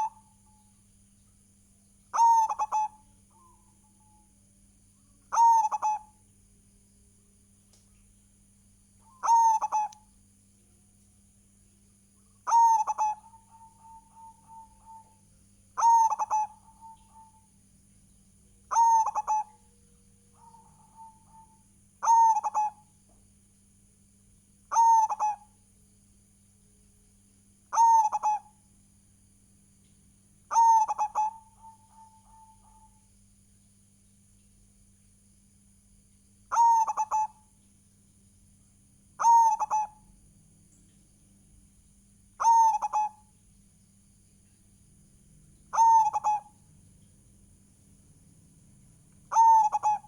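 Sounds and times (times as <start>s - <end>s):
dove cooing: 0.0s - 0.6s, 2.1s - 4.3s, 5.3s - 6.2s, 9.0s - 10.0s, 12.4s - 15.2s, 15.8s - 17.5s, 18.7s - 22.9s, 24.7s - 25.6s, 27.7s - 28.6s, 30.5s - 33.0s, 36.5s - 37.5s, 39.2s - 40.1s, 42.4s - 43.3s, 45.6s - 46.7s, 49.2s - 50.0s
faint low hum: 0.0s - 50.0s.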